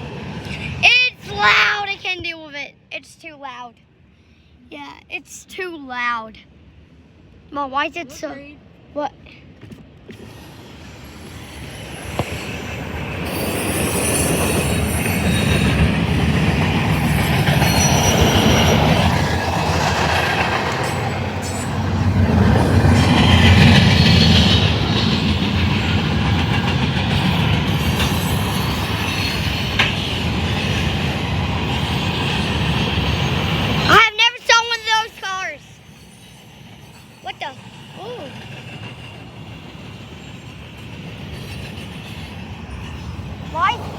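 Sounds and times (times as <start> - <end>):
freight train rumble: 0.0 - 2.9, 4.8 - 43.9
wheels clacking over rail joints: 11.3 - 34.0.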